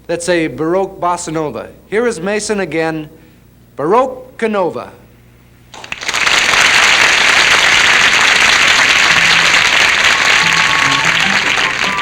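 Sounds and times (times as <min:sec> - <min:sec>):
studio audience applauding: 0:05.8 - 0:12.0
faint music: 0:08.1 - 0:12.0.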